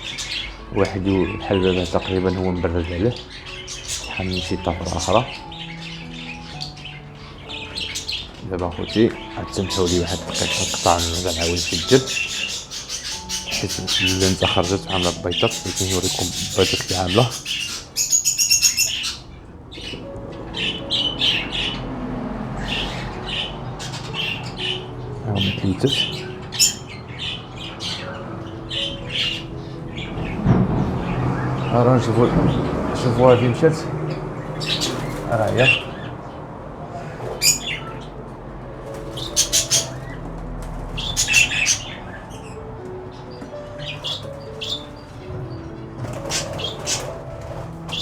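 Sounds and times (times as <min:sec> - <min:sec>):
parrots squawking: 0:00.0 - 0:22.0, 0:22.6 - 0:38.2, 0:38.9 - 0:48.0
birds chirping: 0:00.0 - 0:48.0
birds flapping wings: 0:34.7 - 0:35.9, 0:45.9 - 0:48.0.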